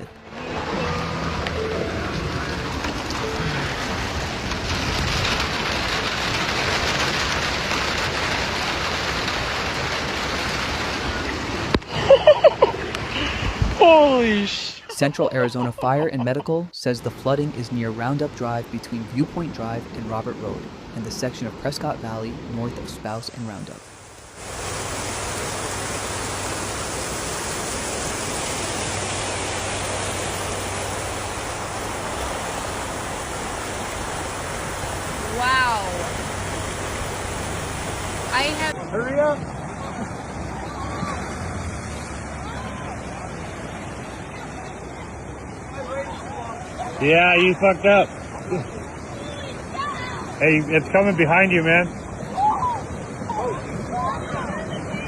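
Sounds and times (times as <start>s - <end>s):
floodwater rushing: 0.0s - 55.0s
heavy rain pouring: 0.0s - 55.0s
person's voice: 13.2s - 23.8s, 35.2s - 36.1s, 38.3s - 38.8s.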